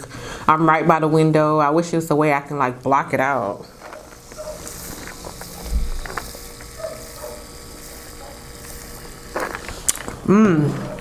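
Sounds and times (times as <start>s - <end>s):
chewing and crunching: 3.6s - 11.0s.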